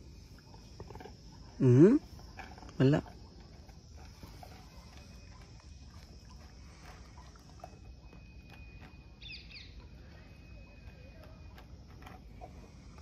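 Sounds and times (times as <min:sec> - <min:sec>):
thin steady high tone: 0:00.0 - 0:13.0
bird double chirp: 0:08.5 - 0:09.8.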